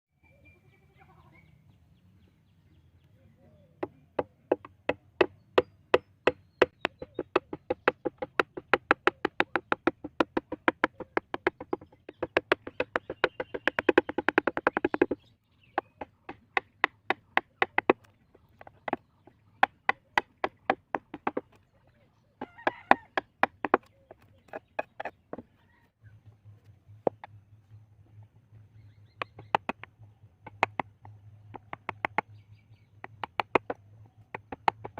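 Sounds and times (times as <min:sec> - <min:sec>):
chisel tapping wood: 0:03.8 - 0:15.2, 0:16.0 - 0:19.0, 0:19.6 - 0:21.6, 0:22.4 - 0:25.4, 0:29.2 - 0:32.3, 0:33.0 - 0:34.9.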